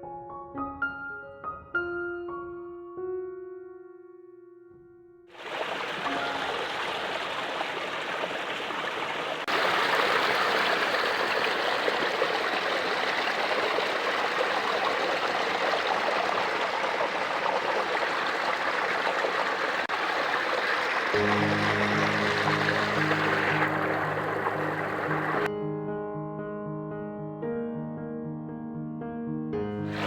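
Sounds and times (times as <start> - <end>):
running water flowing: 5.4 - 25.5.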